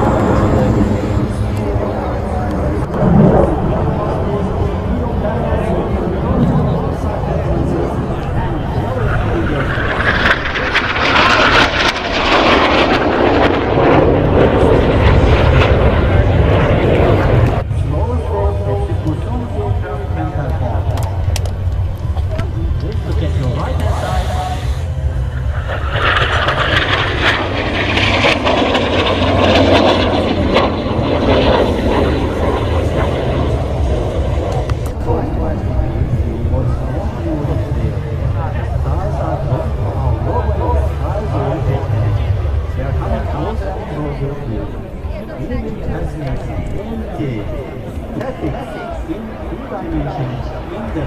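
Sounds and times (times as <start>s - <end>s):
jet aircraft flying past: 0.0s - 51.0s.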